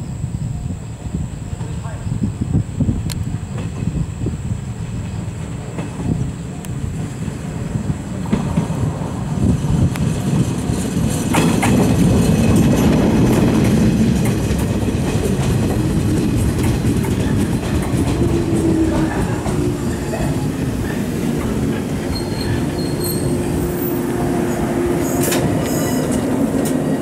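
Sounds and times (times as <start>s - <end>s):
electric train passing: 0.0s - 27.0s
wheels clacking over rail joints: 4.8s - 27.0s
train wheel squeal: 15.8s - 27.0s.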